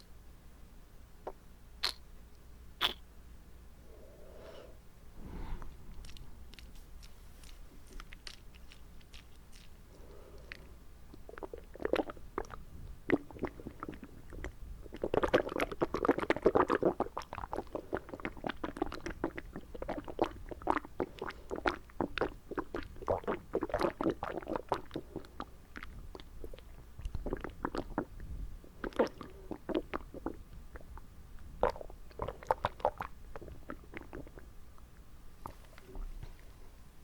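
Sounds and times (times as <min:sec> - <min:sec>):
wet mouth clicks and smacks: 0:06.0 - 0:09.8.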